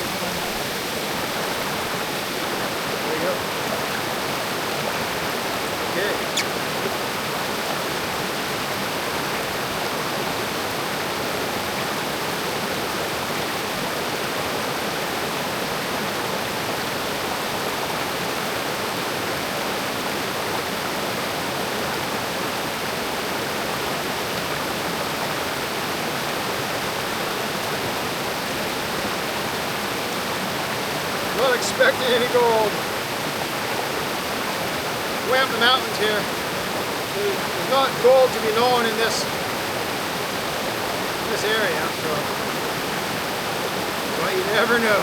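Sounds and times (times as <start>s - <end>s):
water rushing over rocks: 0.0s - 45.0s.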